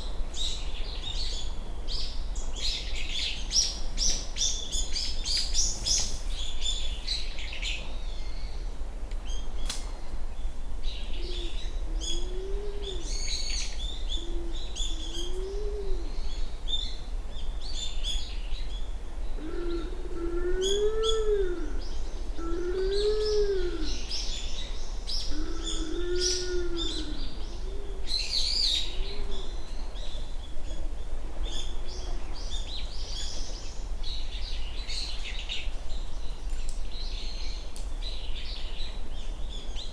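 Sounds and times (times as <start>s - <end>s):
pigeon cooing hollow hoots: 11.2s - 13.1s.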